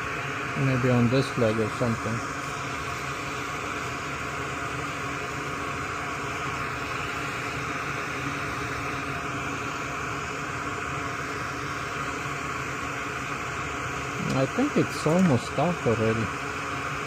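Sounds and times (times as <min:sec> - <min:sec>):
electric fan whirring: 0:00.0 - 0:17.0.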